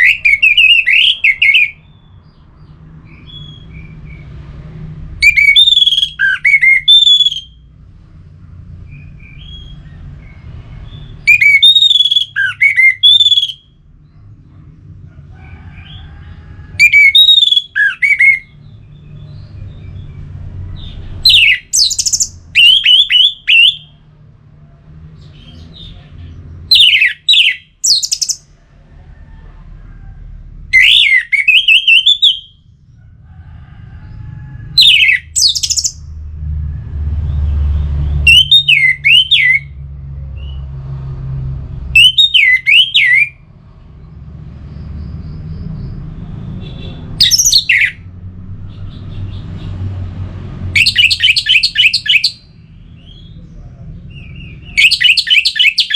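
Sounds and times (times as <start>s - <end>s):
thrush singing whistles and trills: 0.0s - 4.4s, 5.2s - 7.7s, 8.8s - 13.8s, 16.8s - 20.2s, 20.8s - 24.0s, 26.6s - 28.5s, 30.7s - 32.7s, 34.8s - 36.2s, 37.3s - 39.8s, 41.9s - 43.4s, 47.2s - 48.0s, 50.7s - 53.4s, 54.1s - 55.9s.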